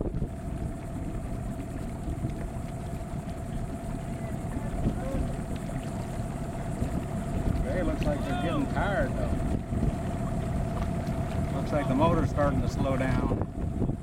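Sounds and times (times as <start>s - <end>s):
motor hum: 0.0s - 14.0s
wind rumbling on microphone: 0.0s - 14.0s.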